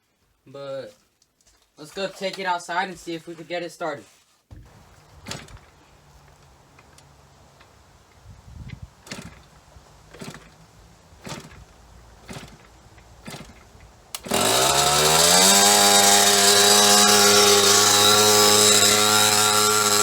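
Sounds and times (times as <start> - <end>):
two-stroke engine revving: 9.0 - 20.0.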